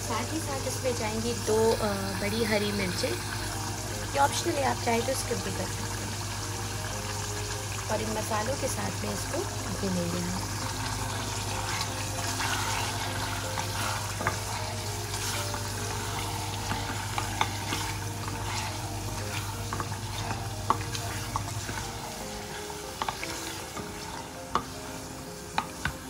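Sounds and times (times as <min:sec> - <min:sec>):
food sizzling in oil: 0:00.0 - 0:26.0
spatula scraping pot: 0:10.5 - 0:25.9.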